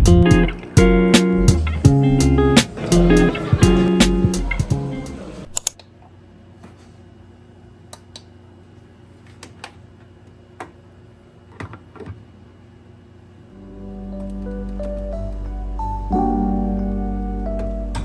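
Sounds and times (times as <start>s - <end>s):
background music: 0.0s - 5.4s, 13.5s - 18.0s.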